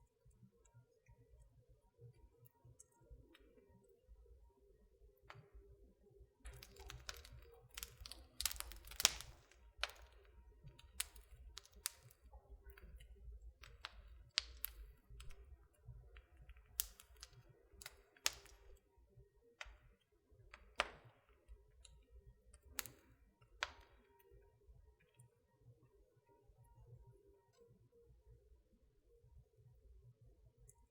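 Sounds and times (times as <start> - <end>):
wood fire crackling: 6.4 - 18.9, 19.6 - 24.1.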